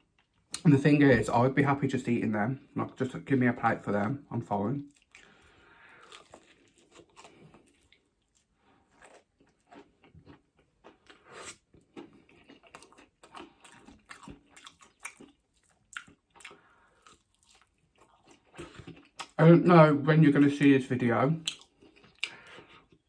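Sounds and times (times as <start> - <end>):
chewing with crisp crunches: 4.8 - 19.4, 21.4 - 23.0.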